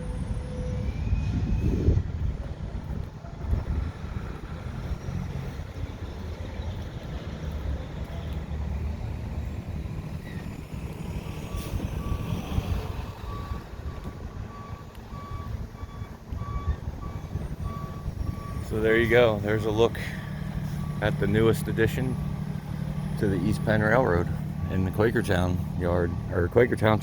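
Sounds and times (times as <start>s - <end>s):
reversing alarm beeping: 11.2s - 27.0s.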